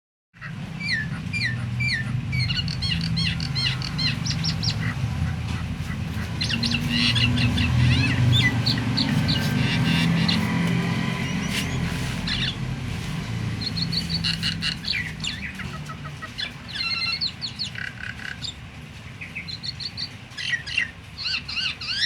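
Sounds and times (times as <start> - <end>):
starling chirping and whistling: 0.8 - 12.6, 13.5 - 18.6, 19.2 - 22.0.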